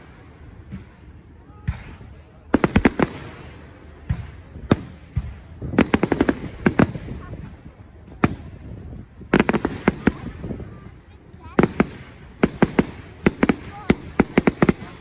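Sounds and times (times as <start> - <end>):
rattling crackle of fireworks: 0.0 - 15.0.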